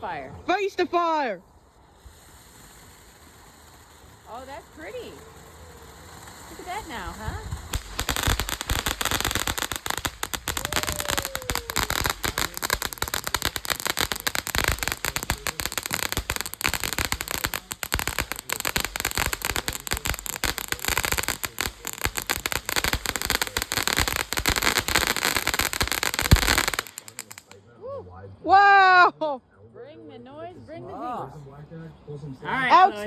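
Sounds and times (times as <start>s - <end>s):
firework rapid cracks and pops: 1.8s - 27.6s.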